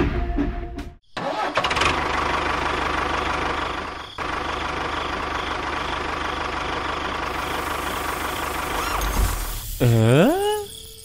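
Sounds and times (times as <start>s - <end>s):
diesel tractor engine idling: 1.2s - 9.5s.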